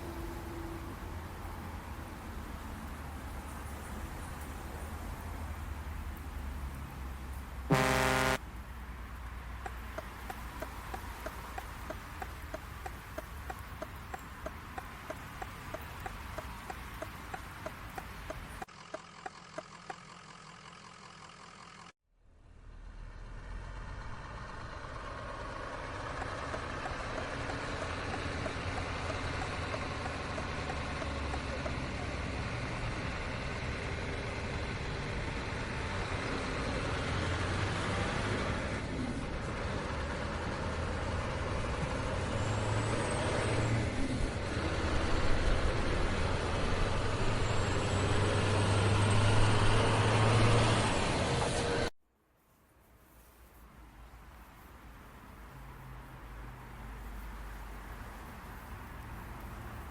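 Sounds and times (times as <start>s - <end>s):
road noise: 0.0s - 59.9s
truck engine running: 1.3s - 21.9s, 22.6s - 42.8s
turn-signal indicator ticking: 26.2s - 31.8s.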